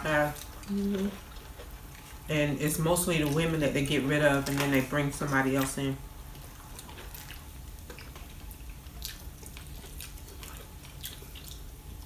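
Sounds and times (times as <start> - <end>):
low background hum: 0.0 - 12.0
wet chewing and mouth smacks: 6.3 - 12.0.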